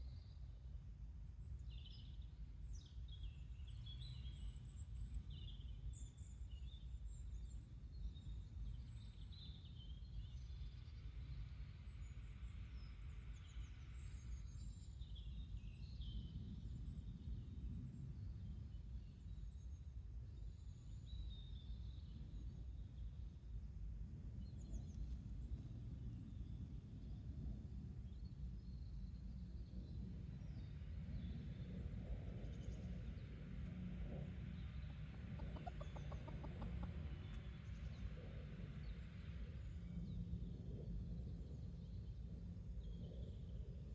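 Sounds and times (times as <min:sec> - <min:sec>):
small birds chirping faintly: 0:00.0 - 0:43.9
low outdoor rumble: 0:23.4 - 0:43.9
small birds chirping: 0:32.6 - 0:39.1
chickens clucking: 0:35.2 - 0:37.3.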